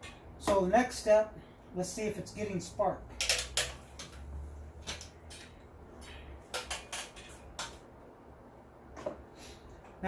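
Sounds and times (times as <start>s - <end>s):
low steady hum: 0.0s - 10.0s
small tools clicking and knocking: 3.1s - 7.8s.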